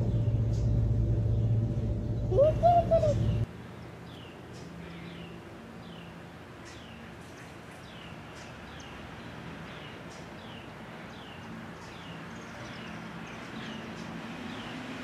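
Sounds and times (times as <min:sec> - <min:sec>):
bird chirping: 0:00.0 - 0:09.0.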